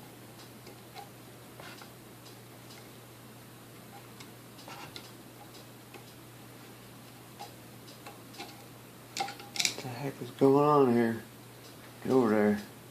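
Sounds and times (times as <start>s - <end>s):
steady low hum: 0.0s - 12.9s
small parts and tools clicking: 7.4s - 9.8s.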